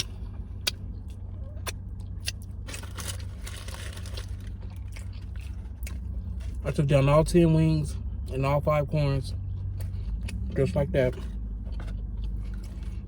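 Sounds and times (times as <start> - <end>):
crunching rustle: 0.0 - 6.6
low electrical hum: 0.0 - 13.0.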